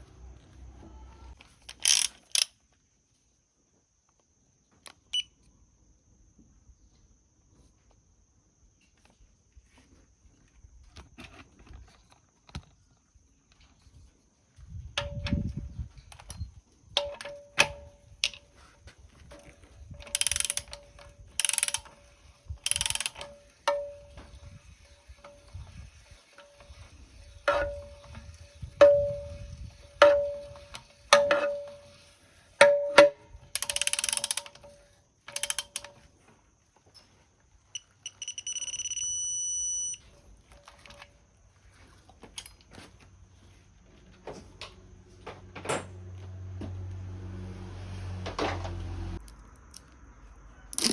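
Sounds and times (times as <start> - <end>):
ratchet clicking: 1.6 - 2.5, 19.4 - 36.0
metal clinks: 27.4 - 32.0, 32.6 - 35.9
electronic beep: 37.8 - 40.0.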